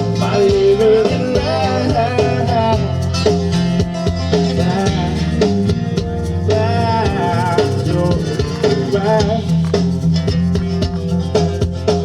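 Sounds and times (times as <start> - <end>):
person singing: 0.0 - 3.0, 4.3 - 5.6, 6.4 - 9.8
shaker: 0.0 - 12.0
steady beat: 0.0 - 12.0
strummed guitar: 0.0 - 12.0
wavering melody line: 4.4 - 9.7.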